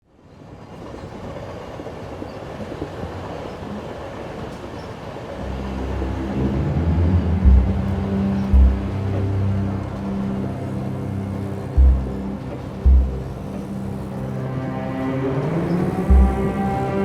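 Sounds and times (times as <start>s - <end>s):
subway train rumbling: 0.1s - 17.0s
low droning tone: 5.4s - 17.0s
deep booming hits: 5.8s - 10.2s, 11.7s - 14.1s, 16.1s - 16.6s.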